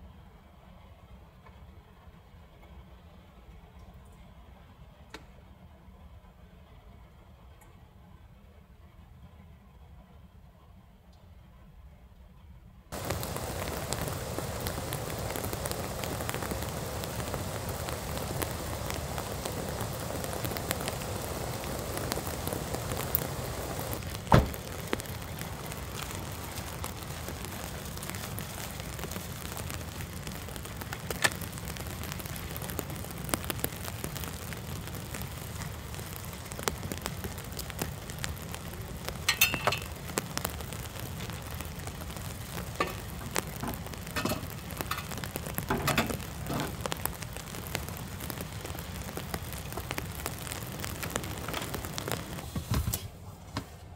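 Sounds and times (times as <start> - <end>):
raindrops ticking: 12.9 - 52.6
rain falling on a vehicle: 12.9 - 53.8
sharp thump: 24.3 - 24.6.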